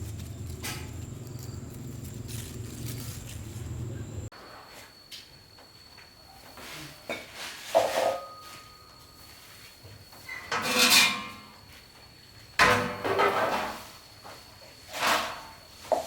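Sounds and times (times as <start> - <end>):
household objects scraping clattering: 10.3 - 11.6.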